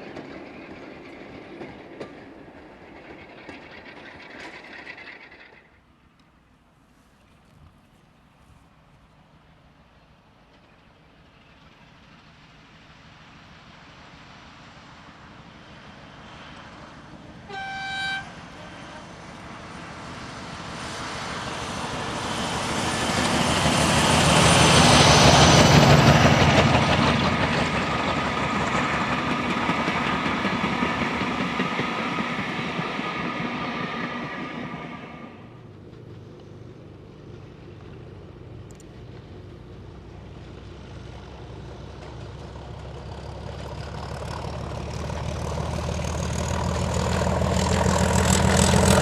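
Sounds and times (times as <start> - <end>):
diesel locomotive passing: 0.0 - 49.0
train horn blast: 17.5 - 19.0.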